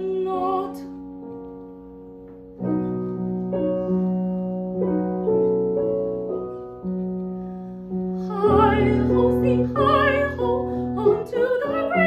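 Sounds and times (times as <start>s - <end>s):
piano chords ringing: 0.0s - 12.0s.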